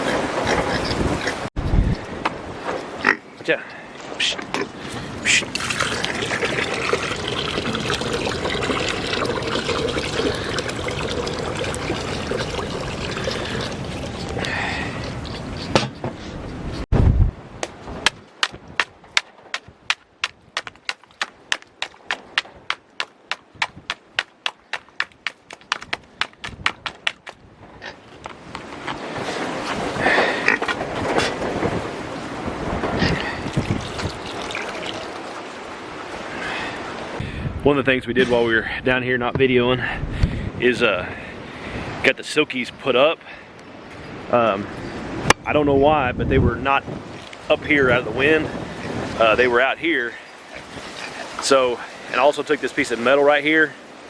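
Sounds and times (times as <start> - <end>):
water pouring into a container: 5.4 - 14.8, 33.2 - 35.5
footsteps on frozen ground: 19.2 - 27.4.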